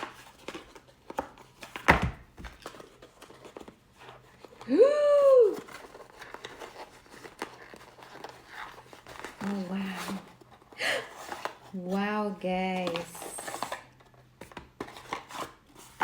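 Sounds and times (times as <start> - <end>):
packaging crinkling and tearing: 5.3 - 11.8.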